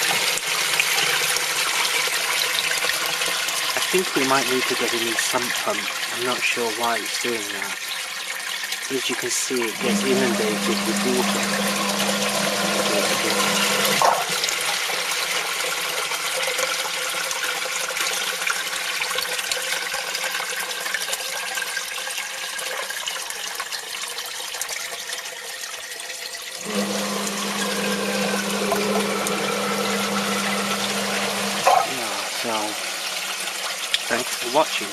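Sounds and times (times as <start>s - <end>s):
sump pump motor humming: 8.9s - 14.6s, 26.6s - 32.9s
water rushing and splashing: 8.9s - 14.7s, 26.6s - 34.9s.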